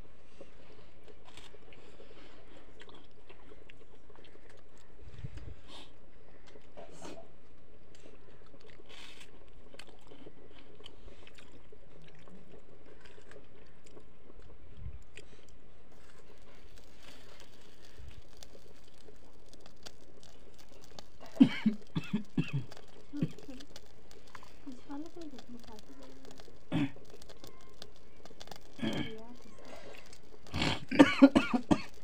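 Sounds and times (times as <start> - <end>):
man chewing food: 0.0 - 32.0
steady background hiss: 14.5 - 32.0
wet mouth clicks: 15.0 - 32.0.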